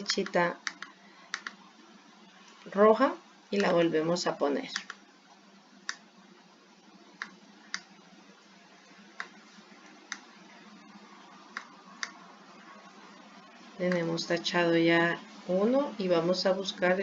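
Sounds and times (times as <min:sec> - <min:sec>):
faint steady hum: 0:00.0 - 0:17.0
computer mouse clicking: 0:00.2 - 0:01.6, 0:03.6 - 0:03.8, 0:04.7 - 0:05.0, 0:05.8 - 0:06.1, 0:07.2 - 0:08.0, 0:09.2 - 0:10.3, 0:11.5 - 0:12.2.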